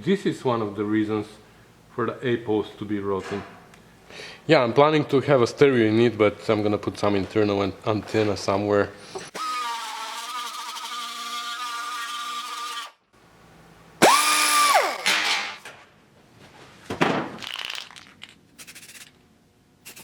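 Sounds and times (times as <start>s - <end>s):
handheld power tool running: 9.3s - 12.9s, 14.0s - 15.4s.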